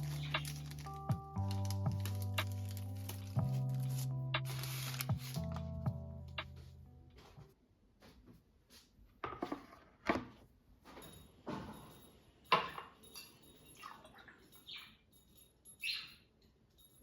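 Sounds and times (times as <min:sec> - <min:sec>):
objects knocking and clinking: 0:10.9 - 0:15.8.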